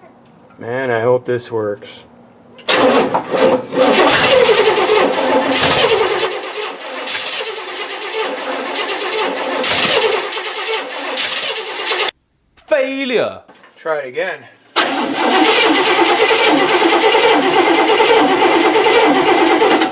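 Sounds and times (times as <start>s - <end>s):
starter motor cranking engine: 2.6s - 12.2s, 14.8s - 19.9s.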